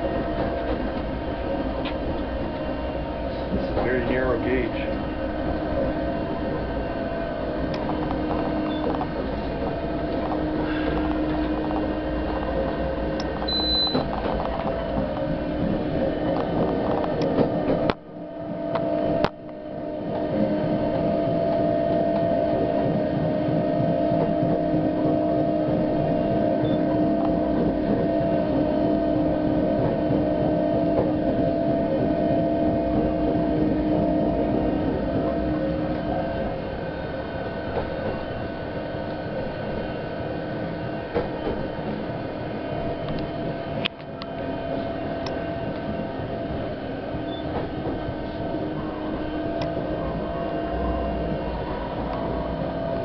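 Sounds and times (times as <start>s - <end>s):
railcar wheels rumbling: 0.0s - 53.0s
running gear hum: 0.0s - 53.0s.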